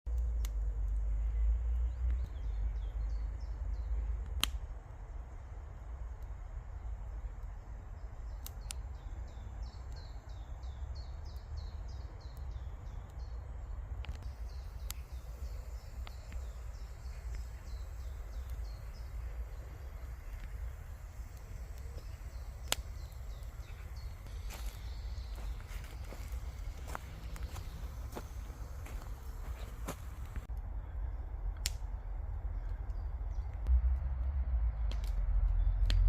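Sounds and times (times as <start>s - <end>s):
small songbird chirping: 0.1s - 4.3s, 5.2s - 31.3s
sharp clicks: 14.0s - 24.4s.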